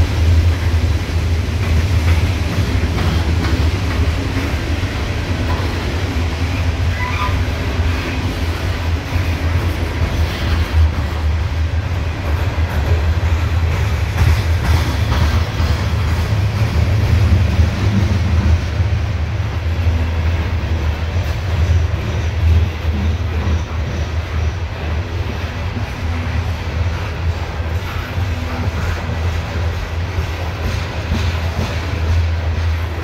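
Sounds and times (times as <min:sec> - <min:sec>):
steel wheels rumbling on rails: 0:00.0 - 0:33.0.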